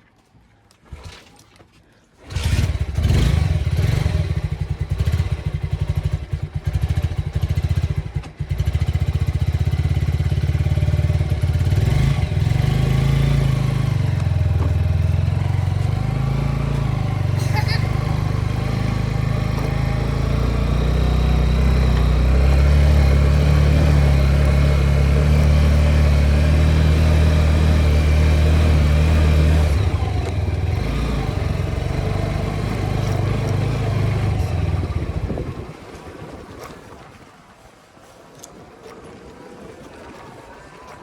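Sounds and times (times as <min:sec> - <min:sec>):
motorcycle engine running: 0:02.2 - 0:35.8.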